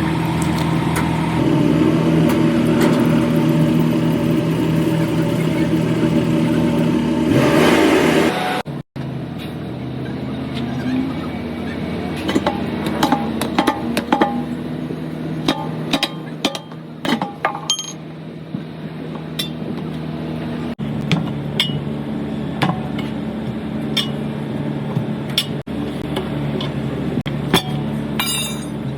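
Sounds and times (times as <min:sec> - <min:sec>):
metallic tool clinks: 0:17.6 - 0:18.0.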